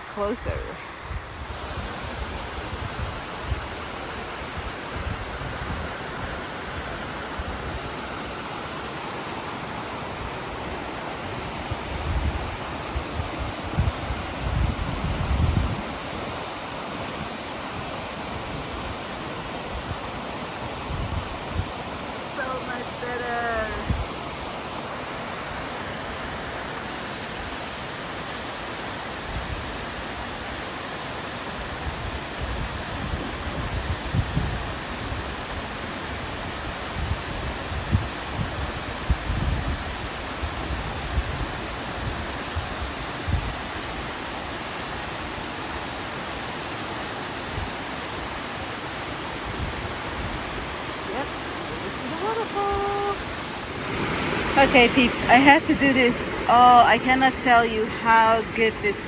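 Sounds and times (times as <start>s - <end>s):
waterfall rushing: 0.0s - 59.0s
wind rumbling on microphone: 0.1s - 8.1s, 10.0s - 24.3s, 31.6s - 44.2s, 49.4s - 59.0s.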